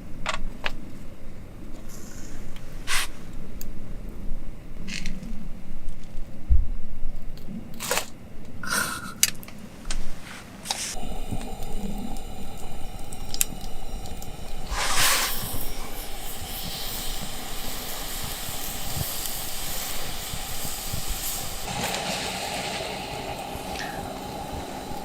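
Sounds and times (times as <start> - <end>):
fire crackles: 9.9 - 25.0
loud hiss: 10.7 - 25.0
meat sizzling on a grill: 11.0 - 25.0.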